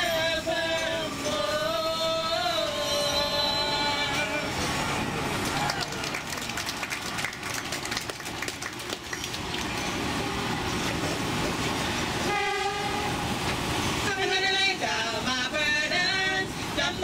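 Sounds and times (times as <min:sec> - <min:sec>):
person singing: 0:00.0 - 0:04.8
locomotive horn: 0:12.1 - 0:14.4.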